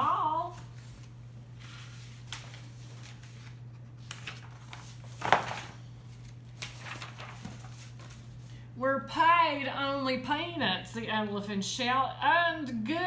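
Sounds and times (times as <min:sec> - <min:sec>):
paper page rustling: 0:00.4 - 0:08.5.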